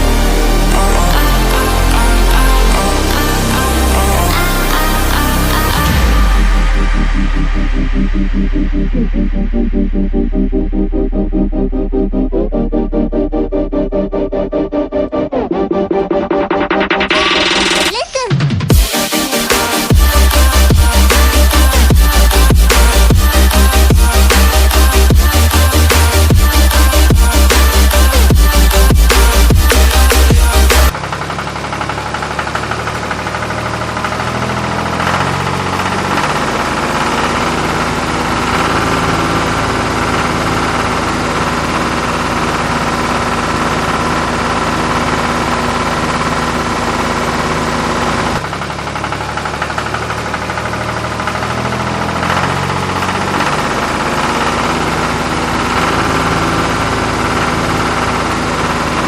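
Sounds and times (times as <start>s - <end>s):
tractor engine idling with knocking: 19.6s - 59.0s.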